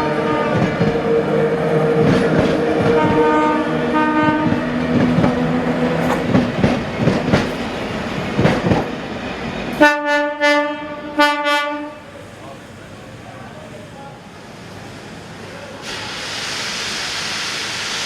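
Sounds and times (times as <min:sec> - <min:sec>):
train machine hum: 0:00.0 - 0:18.0
wheels clicking over rail joints: 0:04.3 - 0:08.9.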